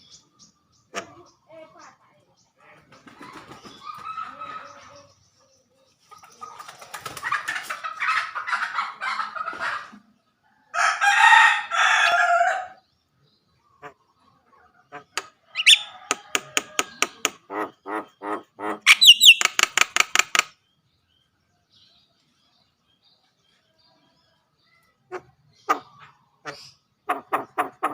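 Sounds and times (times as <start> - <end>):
starling singing: 0.0 - 9.3, 14.9 - 20.5.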